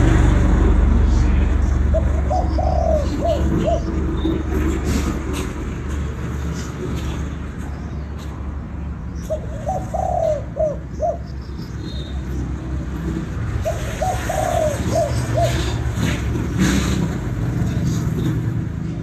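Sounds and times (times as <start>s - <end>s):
dove cooing: 1.8s - 4.6s, 9.2s - 11.3s, 13.6s - 16.0s.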